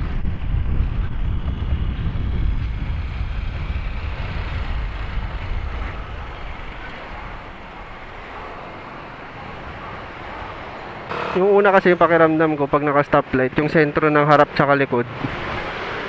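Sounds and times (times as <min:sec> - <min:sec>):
wind rushing over microphone: 0:00.0 - 0:11.1
scooter engine and road noise: 0:00.0 - 0:16.0.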